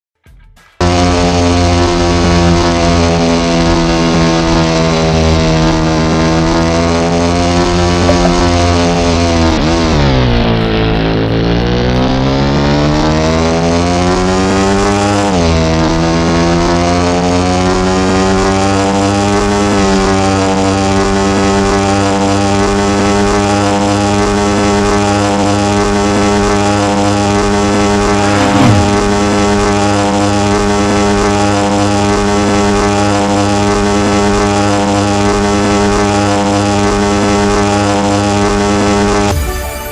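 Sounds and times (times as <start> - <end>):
motorcycle engine at speed: 0.8 - 39.4
sound falling sharply in pitch: 8.0 - 9.0.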